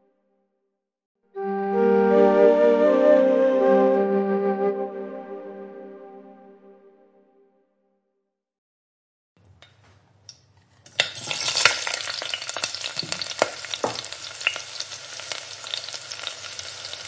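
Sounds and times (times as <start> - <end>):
food frying in hot oil: 10.9 - 17.0.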